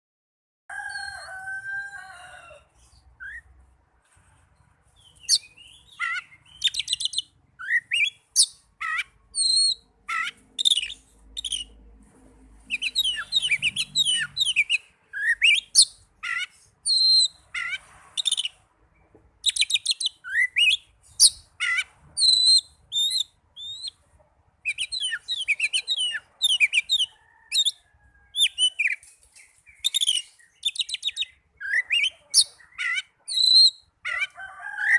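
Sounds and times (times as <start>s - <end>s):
bird singing whistles and chirps: 5.2s - 8.6s, 12.7s - 17.4s, 19.5s - 24.0s, 28.4s - 33.9s.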